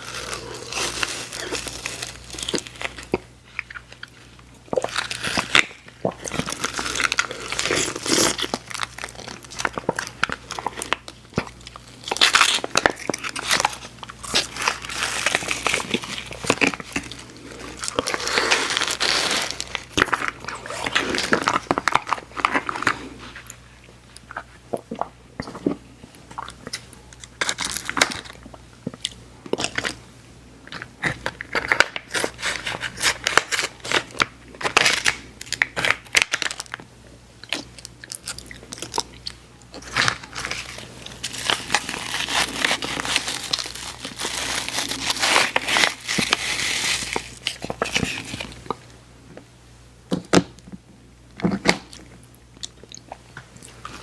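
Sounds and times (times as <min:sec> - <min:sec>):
candy wrapper crinkling: 0:00.0 - 0:23.6, 0:26.4 - 0:28.5, 0:30.8 - 0:36.8, 0:37.4 - 0:48.8
biting and chewing candy: 0:00.0 - 0:30.0, 0:37.4 - 0:48.9.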